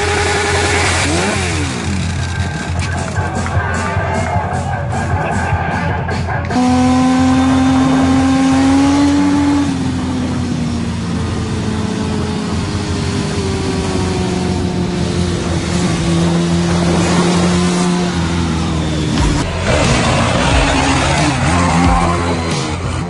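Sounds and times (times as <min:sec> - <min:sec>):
motorcycle engine at high revs: 0:00.0 - 0:03.2, 0:06.4 - 0:23.0.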